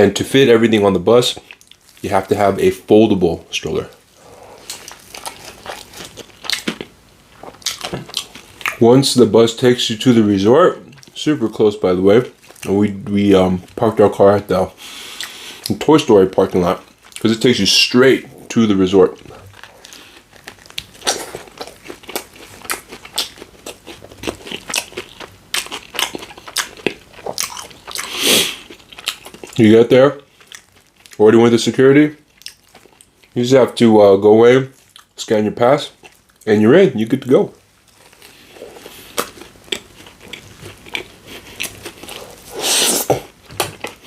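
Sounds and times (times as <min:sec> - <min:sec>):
person chewing crunchy food: 0:01.3 - 0:02.9, 0:03.7 - 0:08.8, 0:12.1 - 0:13.8, 0:16.4 - 0:31.5, 0:32.1 - 0:33.4, 0:34.7 - 0:35.2, 0:35.8 - 0:36.8, 0:37.6 - 0:44.0.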